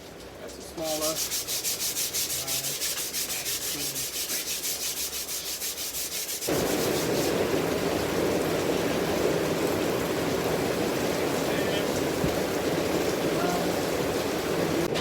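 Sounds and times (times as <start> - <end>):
sandpaper rubbing on wood: 0.8 - 7.4
steady rushing noise: 6.5 - 14.9.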